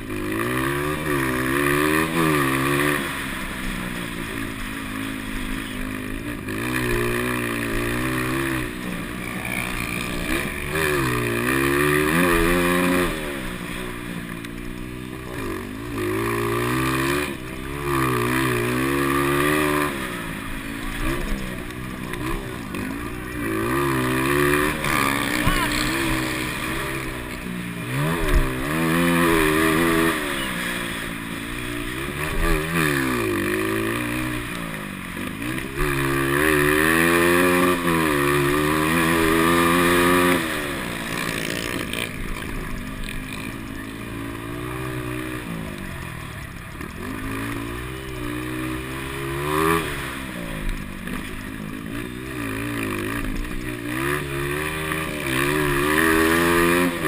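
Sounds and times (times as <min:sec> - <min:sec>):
motocross motorcycle engines revving: 0:00.0 - 0:57.0.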